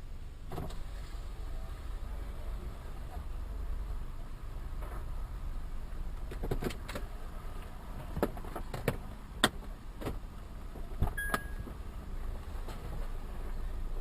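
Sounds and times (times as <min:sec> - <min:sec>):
car engine and road rumble: 0:00.0 - 0:14.0
short high beep: 0:11.2 - 0:11.7.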